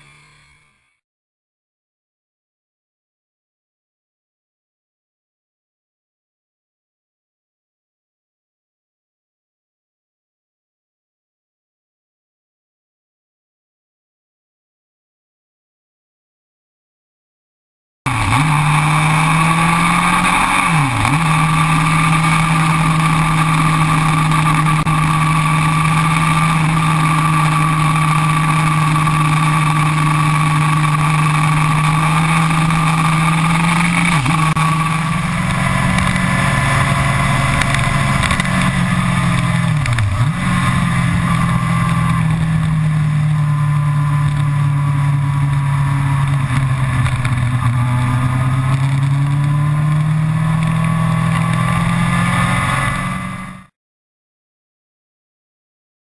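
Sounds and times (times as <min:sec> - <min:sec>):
motorcycle engine cruising: 0:18.1 - 0:53.7.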